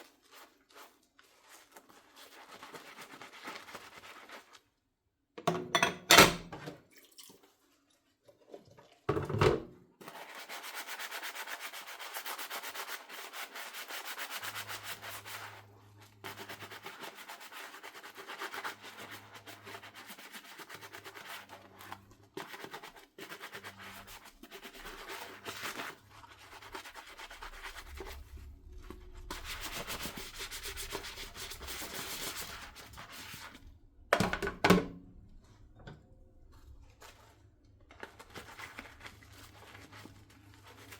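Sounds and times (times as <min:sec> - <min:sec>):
sponge scrubbing a dish: 0:00.0 - 0:05.0, 0:07.4 - 0:09.1, 0:10.0 - 0:33.9, 0:35.3 - 0:40.9
dish knocking against sink: 0:05.4 - 0:06.6, 0:34.1 - 0:35.0.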